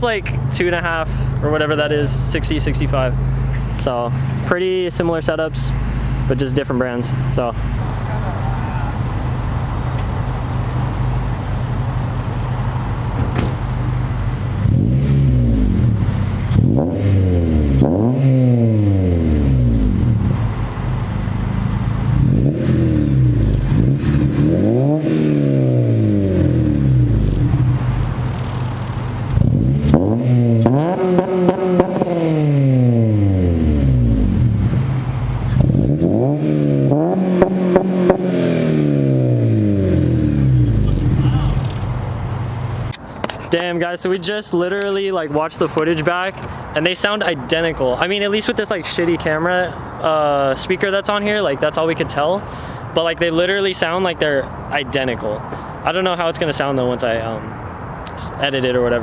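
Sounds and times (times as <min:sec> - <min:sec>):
car engine revving: 0:00.2 - 0:43.0.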